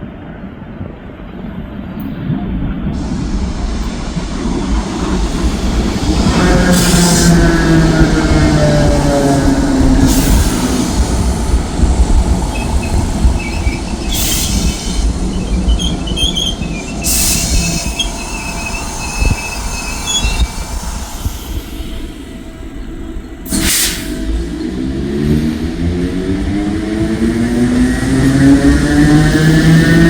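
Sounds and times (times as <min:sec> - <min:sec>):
train rumbling: 0:00.0 - 0:30.0
wheel squeal: 0:12.5 - 0:22.4
short hissing bursts: 0:16.9 - 0:22.4.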